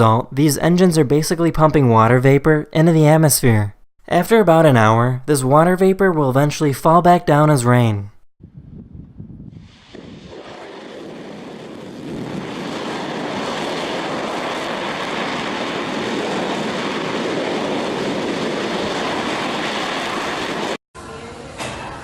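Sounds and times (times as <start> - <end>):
rocket engine roar: 9.6 - 20.8.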